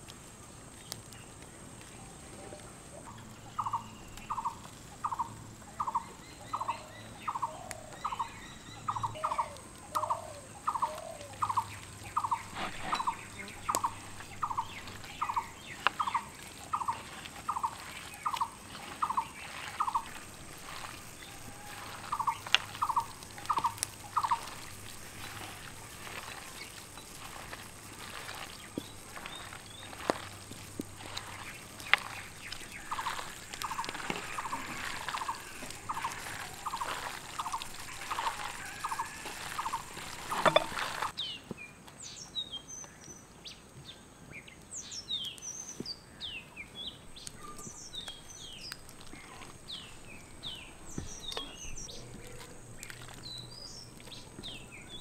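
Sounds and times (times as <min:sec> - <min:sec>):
bird calling: 0:01.9 - 0:41.2
hands mixing vegetables in wooden bowl: 0:05.8 - 0:42.0, 0:46.8 - 0:55.0.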